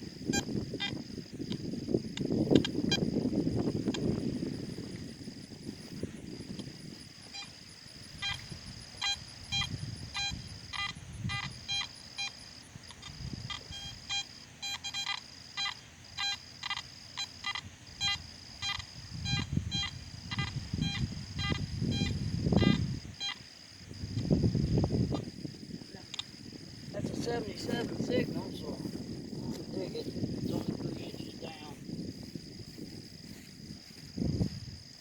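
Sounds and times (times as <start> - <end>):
high insect buzz: 0.0 - 35.0
metal detector beeping: 0.3 - 3.2, 7.2 - 23.4.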